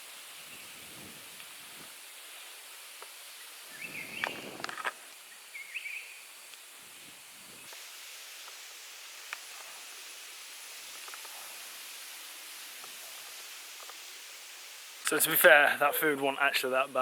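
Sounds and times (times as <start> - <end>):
insects hissing: 0.0 - 17.0
short chirping calls: 3.4 - 4.6, 5.2 - 6.3
light clicks and rustles: 10.9 - 11.6.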